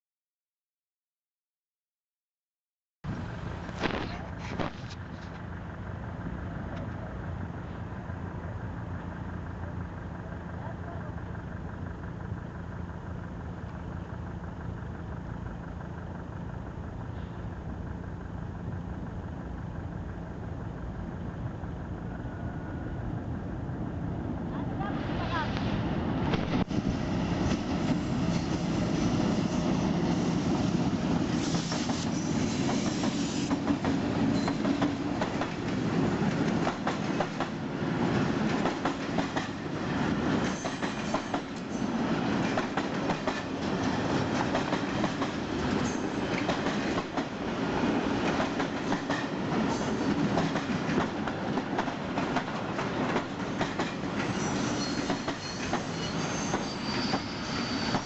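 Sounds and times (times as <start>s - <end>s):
train wheels clacking on rails: 29.9s - 58.0s
metallic wheel squeal: 54.3s - 58.0s.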